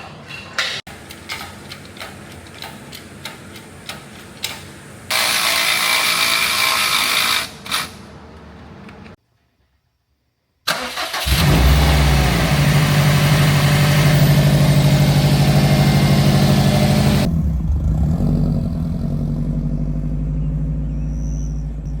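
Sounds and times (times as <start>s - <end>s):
car engine cranking: 10.7s - 22.0s
car engine idling: 11.4s - 22.0s.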